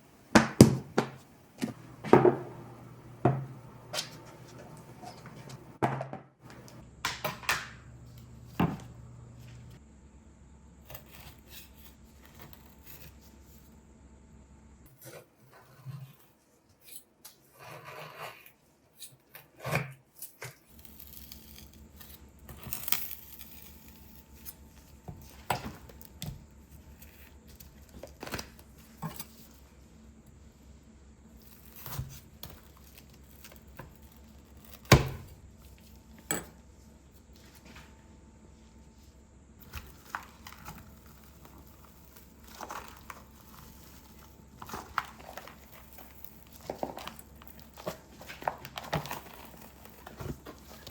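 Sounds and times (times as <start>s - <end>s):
wrappers crinkling: 39.6s - 50.9s.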